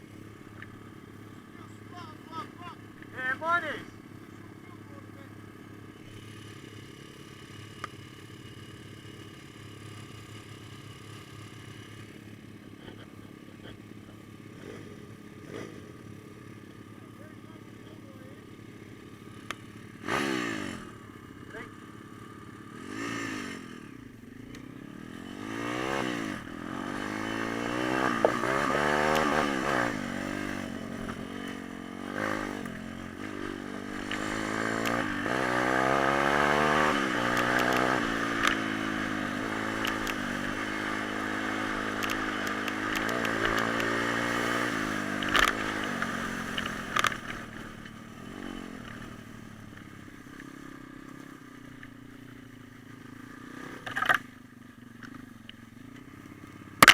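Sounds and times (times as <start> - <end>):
pit bike engine revving: 0.0 - 54.4, 55.0 - 56.9
sharp clacks: 37.2 - 38.7, 41.8 - 44.0.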